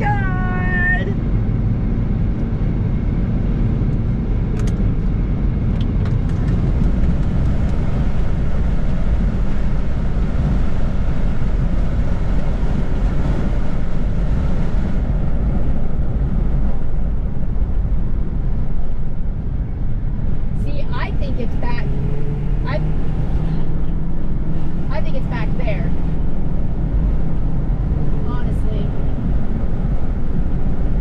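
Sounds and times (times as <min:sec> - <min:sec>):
car cabin road noise: 0:00.0 - 0:31.0.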